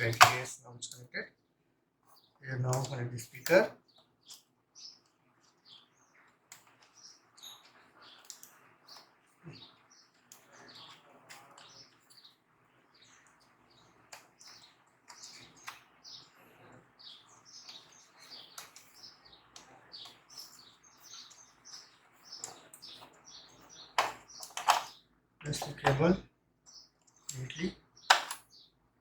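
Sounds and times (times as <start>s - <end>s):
small birds chirping: 0.0s - 29.0s
faint clicks: 6.3s - 9.6s.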